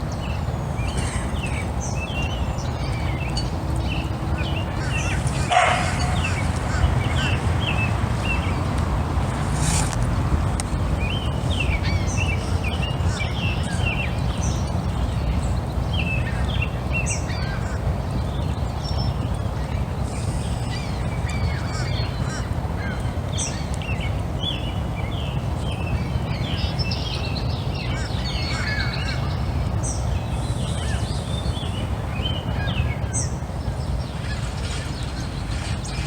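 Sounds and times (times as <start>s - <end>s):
small birds chirping: 0.0s - 36.0s
steady low rumble: 0.0s - 36.0s.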